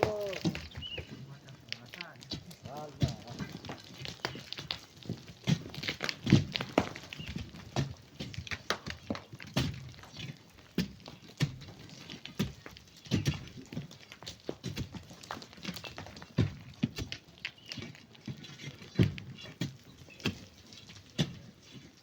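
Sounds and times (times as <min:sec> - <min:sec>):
digging in sand and rock: 0:00.0 - 0:22.0.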